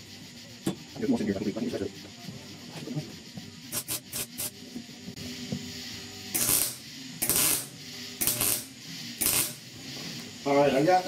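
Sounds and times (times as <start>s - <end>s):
welding arc crackling: 3.6s - 4.6s, 6.3s - 9.9s.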